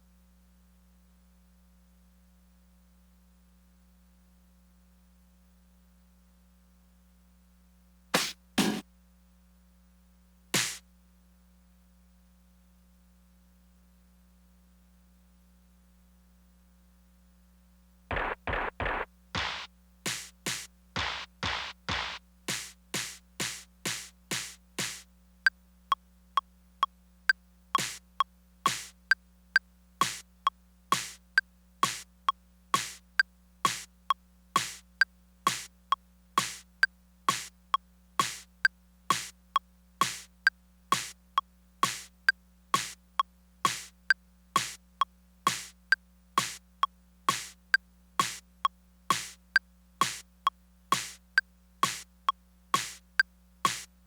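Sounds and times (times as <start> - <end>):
sharp bright drum hits: 8.2 - 8.8, 10.6 - 10.8, 43.7 - 43.9, 50.9 - 51.2
short high blips: 27.8 - 28.0, 28.7 - 28.9, 30.9 - 31.2, 34.6 - 34.8, 38.2 - 38.4, 40.9 - 41.1, 50.9 - 51.2.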